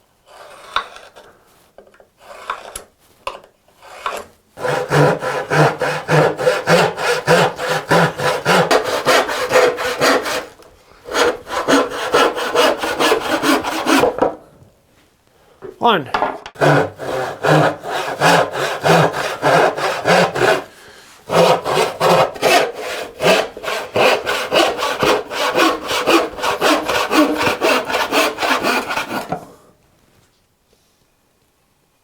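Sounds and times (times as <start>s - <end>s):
hand saw cutting wood: 0.3s - 1.3s, 2.2s - 2.9s, 3.8s - 14.4s, 16.6s - 29.6s.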